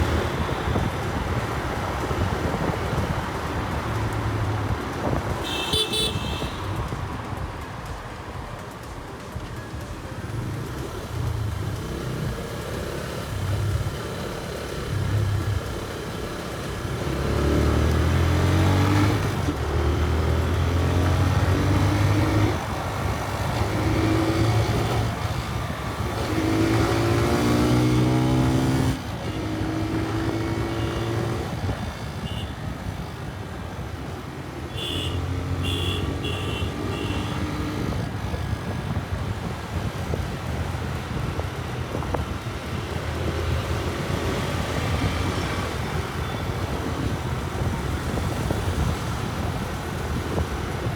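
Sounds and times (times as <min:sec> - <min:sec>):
motorcycle engine accelerating: 0:10.6 - 0:50.9.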